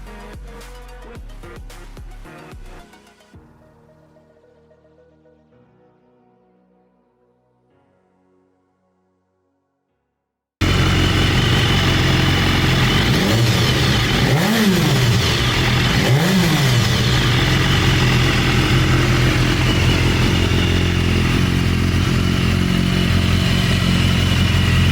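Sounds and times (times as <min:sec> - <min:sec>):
motorcycle engine idling and revving: 0:10.6 - 0:24.9.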